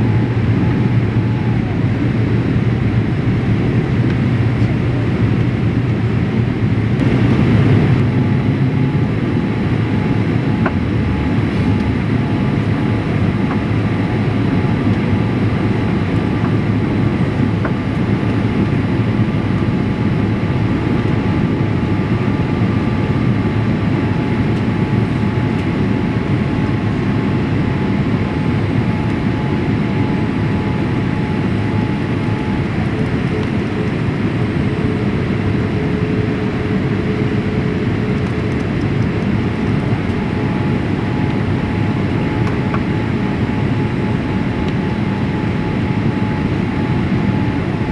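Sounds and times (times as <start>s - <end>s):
faint whining tones: 0.0s - 3.8s, 7.0s - 37.5s
airliner cabin rumble: 0.0s - 47.9s.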